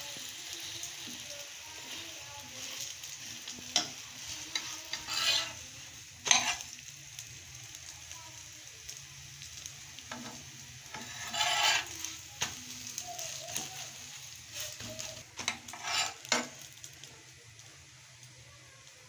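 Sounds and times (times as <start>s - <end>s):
flatbread sizzling on a pan: 0.0s - 19.0s
metal tongs clicking on pan: 3.7s - 5.6s, 6.2s - 6.8s, 14.5s - 17.0s.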